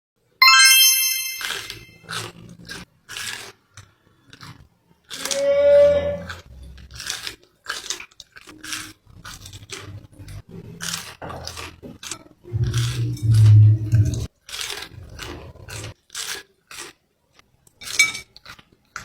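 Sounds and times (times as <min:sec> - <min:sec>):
loud pitched sound: 0:00.4 - 0:01.9
crunchy chewing of food: 0:02.0 - 0:19.0.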